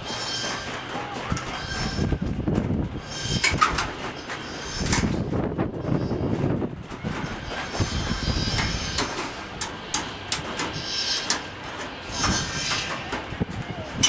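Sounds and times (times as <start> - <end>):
sheet metal knocks and clatter: 0.4 - 5.6.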